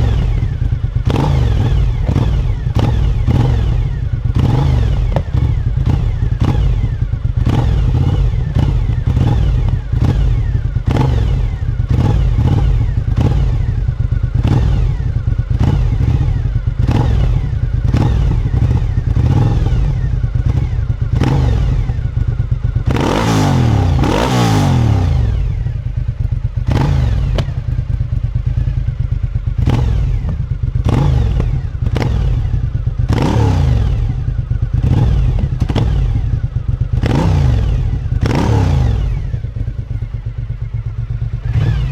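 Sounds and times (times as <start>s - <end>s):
motorcycle engine revving: 0.0s - 41.9s
exhaust pops: 5.0s - 5.6s, 27.2s - 28.0s.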